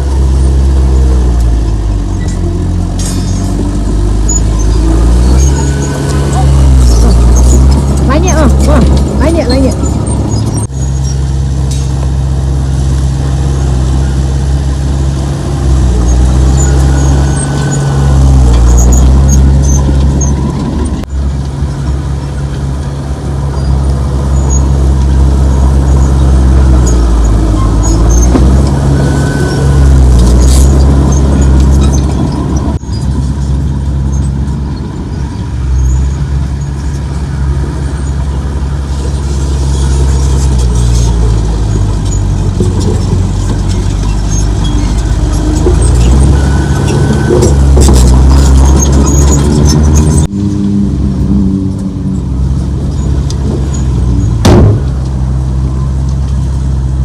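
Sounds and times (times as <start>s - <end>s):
heavy diesel engine running: 0.0s - 57.0s
faint high squeaks and ticks: 38.9s - 50.3s.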